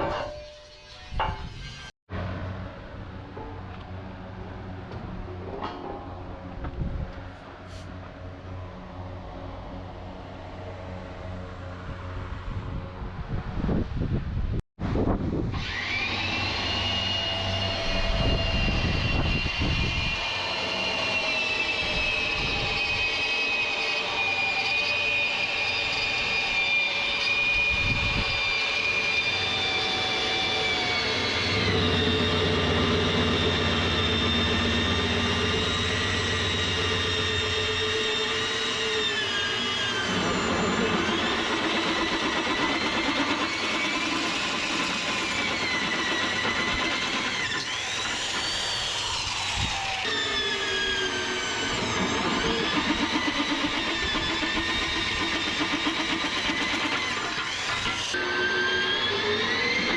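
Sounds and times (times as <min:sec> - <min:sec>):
low engine-like hum: 0:02.1 - 0:15.2
power tool whining: 0:15.4 - 0:59.9.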